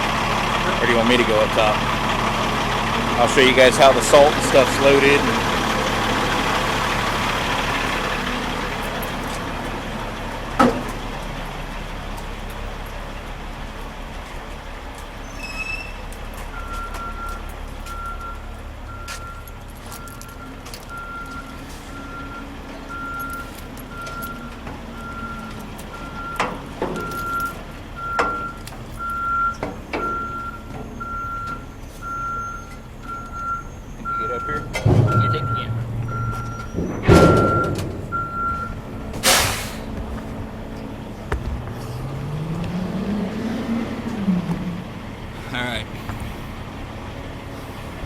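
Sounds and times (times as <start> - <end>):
truck engine idling: 0.0 - 48.0
backup alarm beeping: 15.6 - 41.5
air hiss: 39.2 - 39.9.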